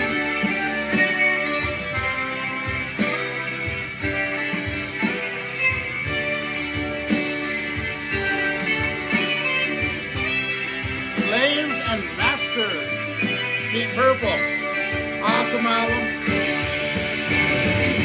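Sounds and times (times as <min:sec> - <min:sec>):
rock music from a record: 0:00.0 - 0:18.0.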